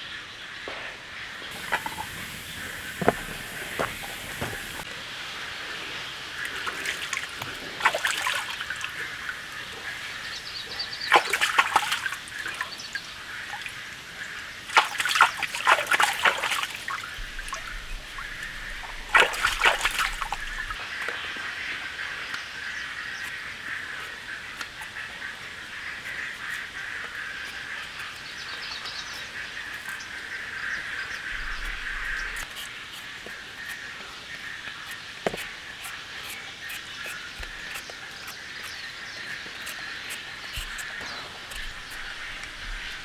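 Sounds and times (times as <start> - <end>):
water splashing and sloshing: 1.1 - 22.4, 28.8 - 43.0
steady background hiss: 1.4 - 11.4.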